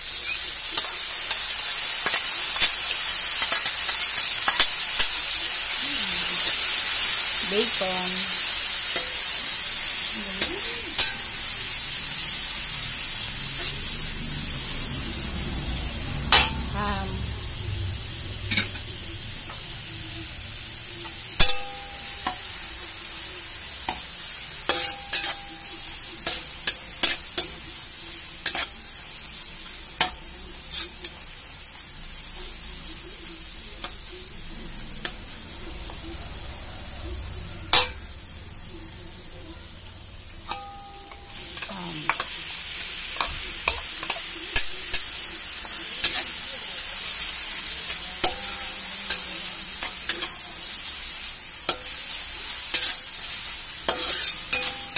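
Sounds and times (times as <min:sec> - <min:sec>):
meat sizzling in a wok: 0:00.0 - 0:54.9
metal spatula scraping wok: 0:02.0 - 0:20.4, 0:23.7 - 0:29.1, 0:30.0 - 0:31.2, 0:40.2 - 0:54.9.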